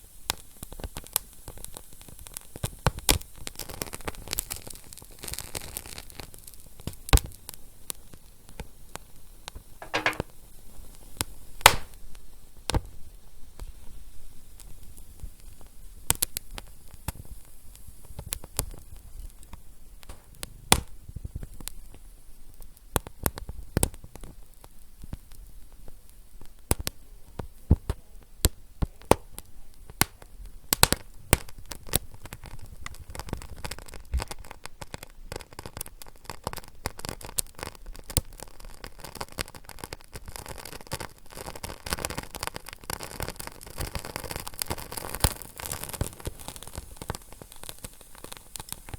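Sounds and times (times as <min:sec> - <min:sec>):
fire crackling: 0:11.6 - 0:12.2, 0:14.6 - 0:48.9.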